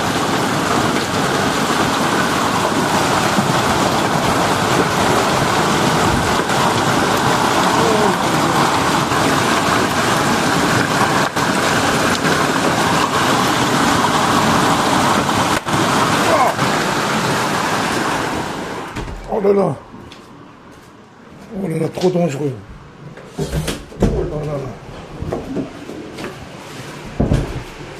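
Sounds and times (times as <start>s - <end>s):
heavy rain downpour: 0.0s - 19.8s.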